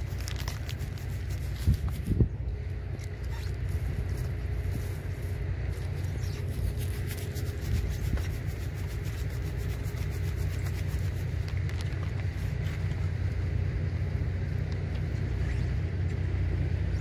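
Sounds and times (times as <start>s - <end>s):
small crackles or rustles: 0.0s - 2.2s, 2.9s - 13.2s
faint steady hum: 0.0s - 17.0s
low vehicle rumble: 0.0s - 17.0s.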